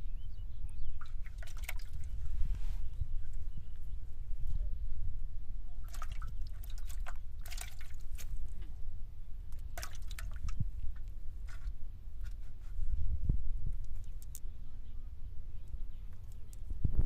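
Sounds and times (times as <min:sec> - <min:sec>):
steady low rumble: 0:00.0 - 0:17.0
water splashing and dripping: 0:01.0 - 0:02.2, 0:05.8 - 0:08.7, 0:09.5 - 0:11.6.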